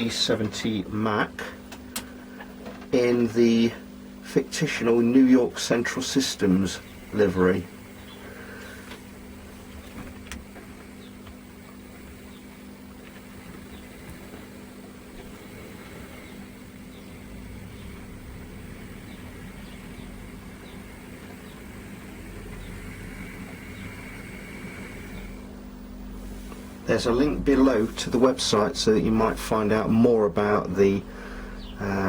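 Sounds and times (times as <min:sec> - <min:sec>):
model locomotive hum: 0:04.4 - 0:29.9.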